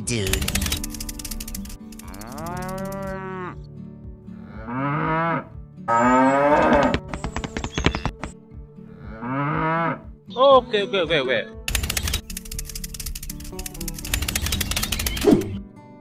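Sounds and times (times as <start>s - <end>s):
cattle mooing: 2.0s - 3.6s, 4.4s - 7.0s, 9.0s - 10.0s.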